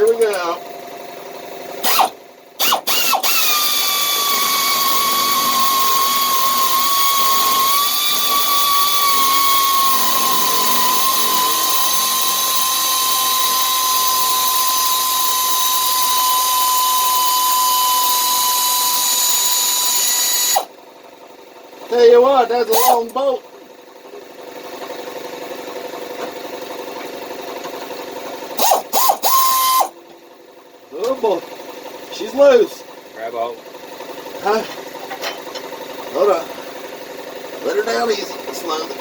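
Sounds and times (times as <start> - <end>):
power tool whining: 1.8 - 20.7, 22.7 - 23.1, 28.6 - 30.0.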